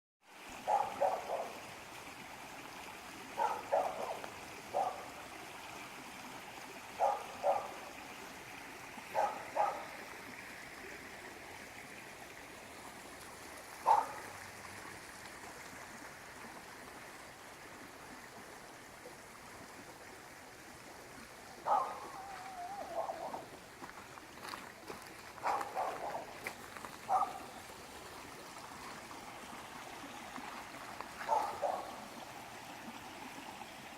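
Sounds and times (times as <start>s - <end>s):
stream water running: 0.2s - 33.9s.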